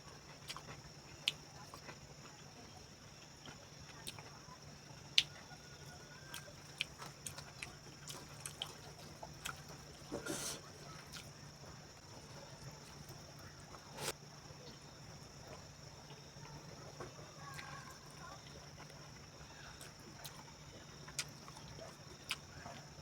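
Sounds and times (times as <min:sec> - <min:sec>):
steady background hum: 0:00.0 - 0:23.0
wet chewing clicks and smacks: 0:00.4 - 0:02.4, 0:05.1 - 0:05.4, 0:06.3 - 0:10.1, 0:19.6 - 0:23.0.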